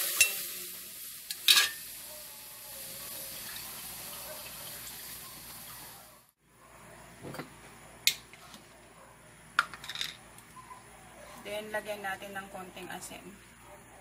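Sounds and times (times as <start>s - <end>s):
aromatics sizzling in hot oil: 0.0s - 6.3s.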